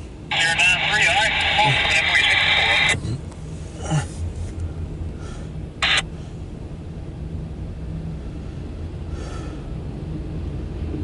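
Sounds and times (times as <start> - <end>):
low vehicle rumble: 0.0 - 11.0
scanner radio noise: 0.3 - 3.1, 5.8 - 6.1.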